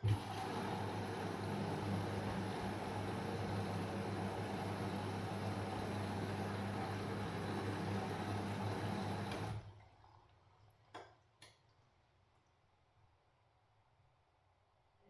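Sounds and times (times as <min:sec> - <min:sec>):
washing machine running: 0:00.0 - 0:10.2.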